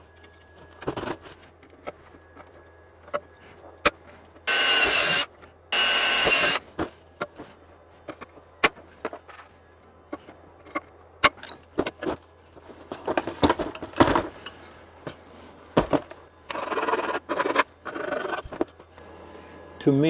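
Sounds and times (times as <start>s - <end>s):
power drill drilling metal: 4.5s - 6.7s.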